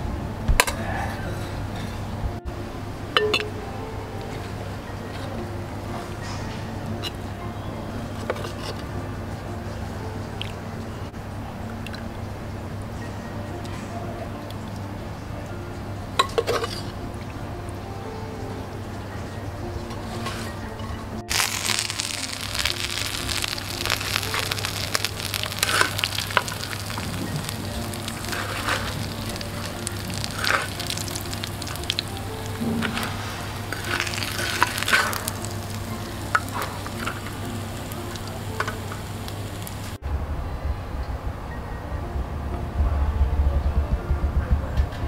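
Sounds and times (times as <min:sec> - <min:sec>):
faint background music: 0:00.0 - 0:45.0
fish sizzling in hot oil: 0:21.3 - 0:40.0.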